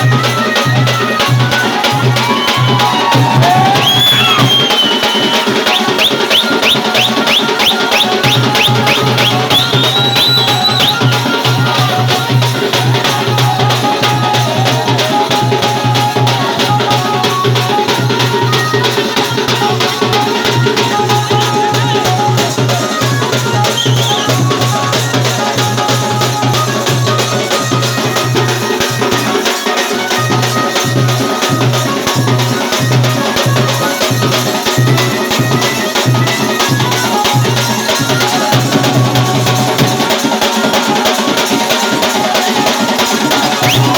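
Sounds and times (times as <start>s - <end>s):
held melody: 0.0s - 43.9s
rattling percussion: 0.0s - 43.9s
fast dense drumming: 1.5s - 29.2s.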